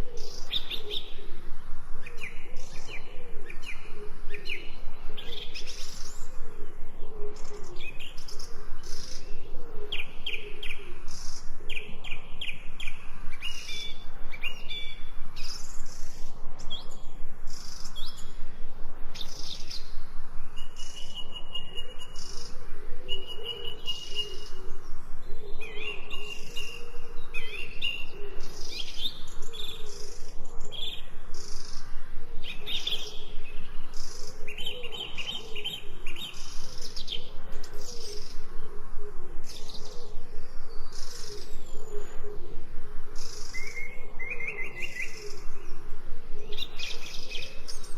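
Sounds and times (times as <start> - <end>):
birds chirping and trilling: 0.0 - 47.9
long whistled bird notes: 19.1 - 31.8.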